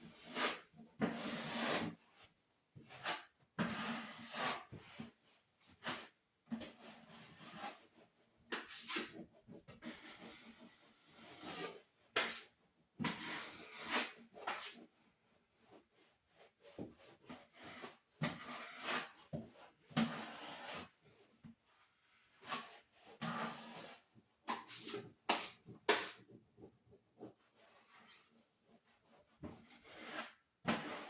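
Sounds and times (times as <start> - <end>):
hand scrubbing a surface: 13.2 - 31.0.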